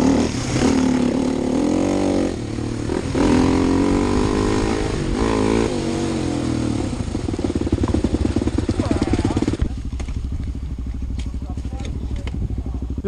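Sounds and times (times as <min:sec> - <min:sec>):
rush of noise: 0:00.0 - 0:10.1
motorcycle engine revving and idling: 0:00.0 - 0:13.0.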